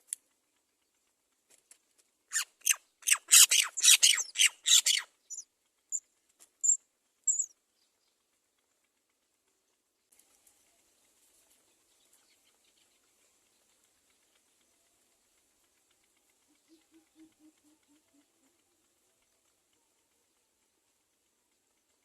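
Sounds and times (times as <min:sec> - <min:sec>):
nestling rasping begging calls: 0:02.3 - 0:05.4, 0:06.6 - 0:07.5.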